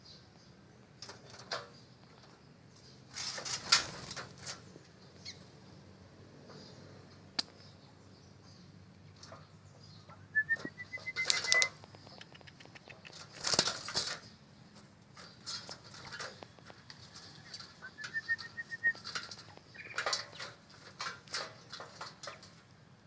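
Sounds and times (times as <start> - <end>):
pigeon wings flapping: 3.2 - 4.5, 13.1 - 14.2.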